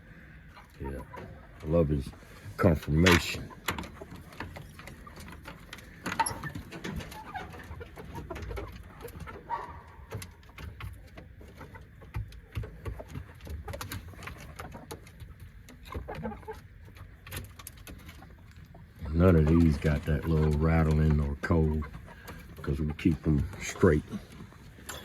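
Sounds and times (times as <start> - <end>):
chickens calling softly: 0.0 - 25.0
small clicks and knocks: 10.1 - 18.8.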